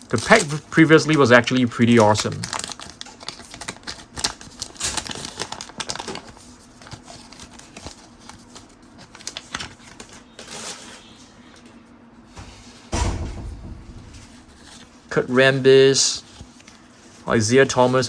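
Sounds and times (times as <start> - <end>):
dull bump: 12.4 - 14.9.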